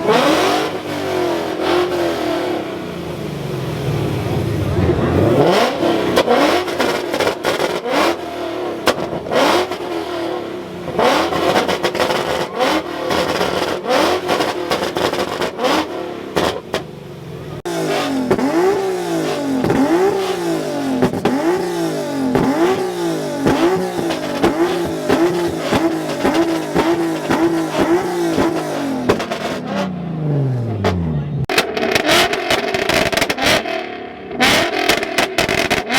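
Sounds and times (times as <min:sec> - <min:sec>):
car engine revving: 0:00.0 - 0:35.9
sharp cracks: 0:31.5 - 0:33.7, 0:34.4 - 0:35.9.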